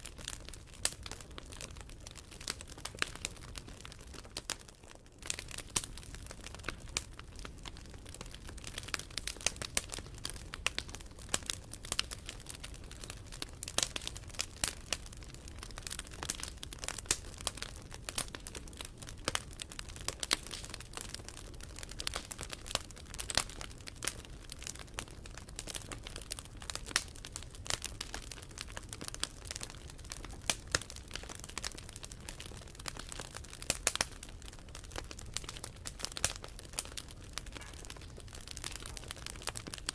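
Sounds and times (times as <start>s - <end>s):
campfire crackling: 0.0s - 39.9s
snaps and pops of fire: 5.2s - 15.0s, 22.0s - 39.9s
low rush of flames: 28.6s - 39.8s.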